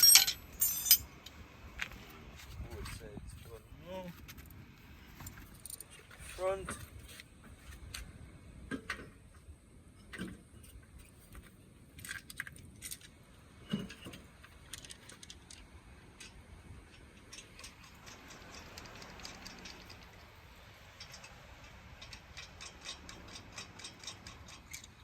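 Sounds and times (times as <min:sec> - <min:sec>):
hand tools clinking on metal: 0:00.0 - 0:01.1, 0:20.8 - 0:25.0.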